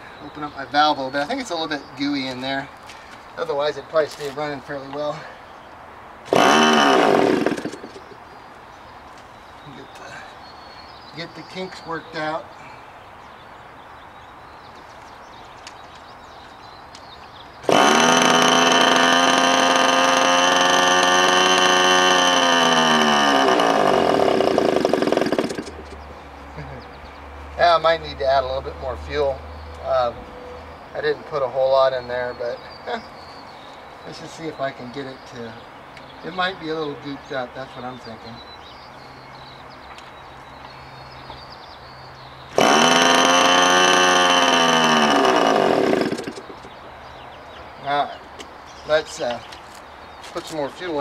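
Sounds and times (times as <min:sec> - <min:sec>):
model engine running and sputtering: 0:06.3 - 0:08.0, 0:17.7 - 0:26.0, 0:42.5 - 0:46.5
electric starter whining: 0:06.3 - 0:08.2, 0:17.6 - 0:26.0, 0:42.5 - 0:46.7.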